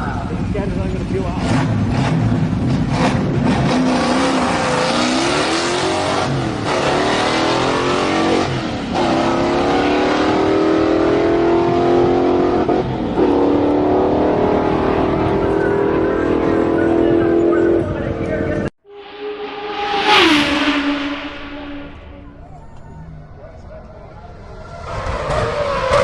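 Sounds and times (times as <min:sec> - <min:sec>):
engine revving: 0:18.8 - 0:22.9.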